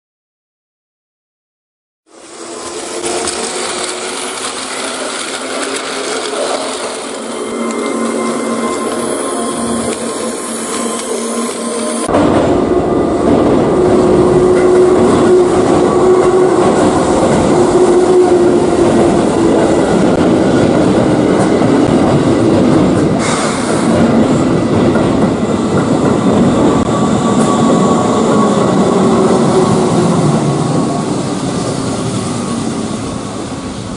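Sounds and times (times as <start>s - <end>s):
electric train motor whine: 2.1s - 21.6s
train running on rails: 2.1s - 33.9s.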